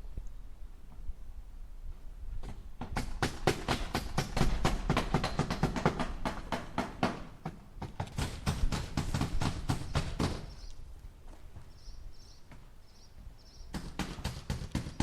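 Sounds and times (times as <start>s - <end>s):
hammer driving nails into wood: 2.4s - 10.5s.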